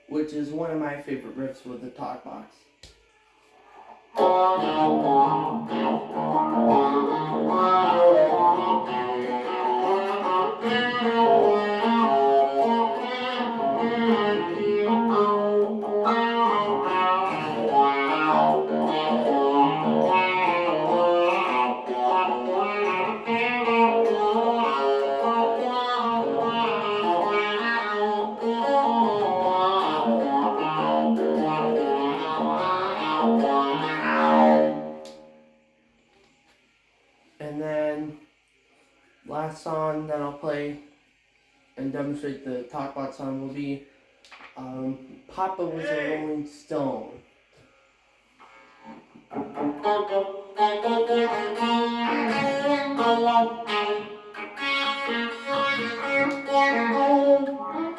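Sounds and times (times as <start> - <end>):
electric guitar through talk box: 4.2 - 34.9, 50.7 - 57.9.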